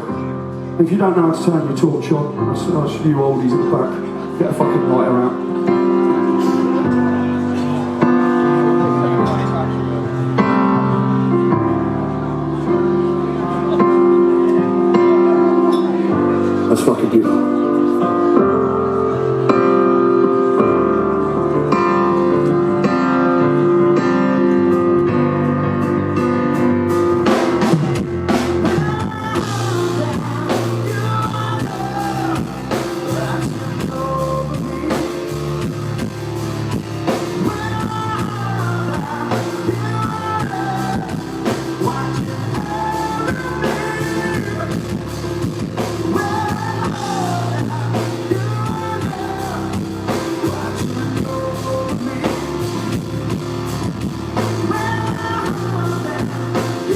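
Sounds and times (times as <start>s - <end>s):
drums: 0.0s - 56.9s
guitar chords: 0.0s - 56.9s
person singing: 26.6s - 56.9s.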